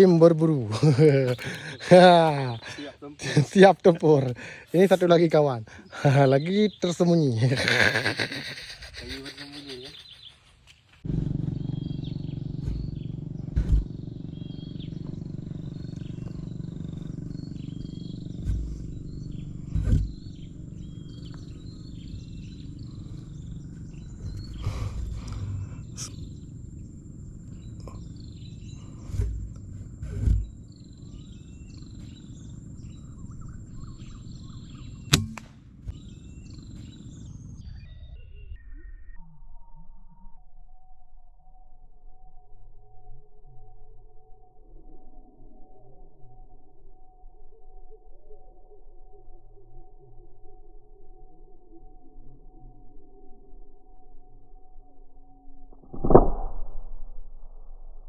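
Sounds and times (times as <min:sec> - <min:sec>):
low wind rumble: 0:00.0 - 0:38.6
small birds chirping: 0:00.0 - 0:38.7
high-pitched insect drone: 0:06.0 - 0:10.6, 0:13.8 - 0:35.1
dull thumps: 0:12.6 - 0:14.2, 0:19.6 - 0:20.4
sharp crack: 0:35.1 - 0:35.8, 0:55.8 - 0:57.0.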